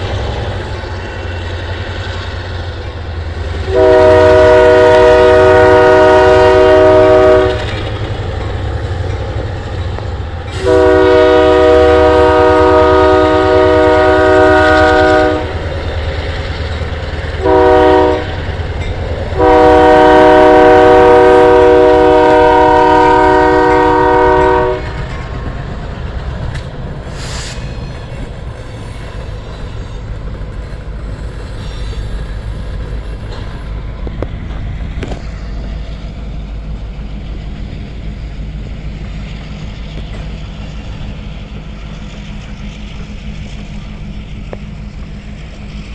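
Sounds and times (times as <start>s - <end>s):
train rumbling past: 0.0s - 45.9s
locomotive air horn blasts: 3.6s - 7.8s, 10.5s - 15.7s, 17.4s - 18.4s, 19.4s - 25.1s.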